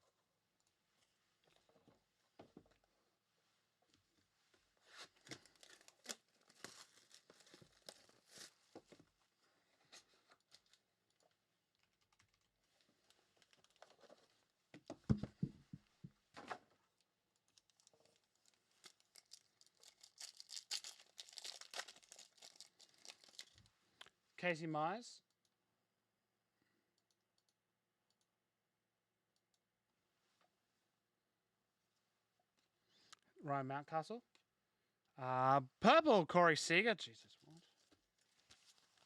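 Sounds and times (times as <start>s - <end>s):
packaging crinkling and tearing: 5.0s - 8.6s, 13.1s - 14.3s, 17.4s - 23.7s.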